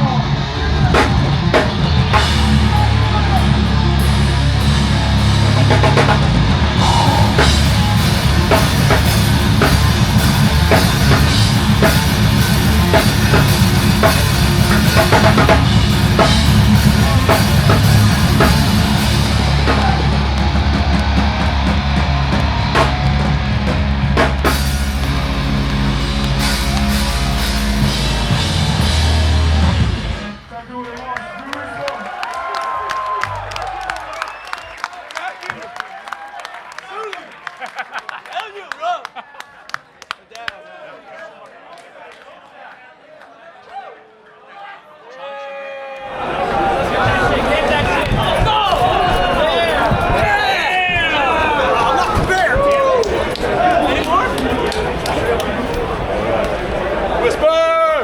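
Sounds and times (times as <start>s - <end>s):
heavy rock music: 0.0s - 30.7s.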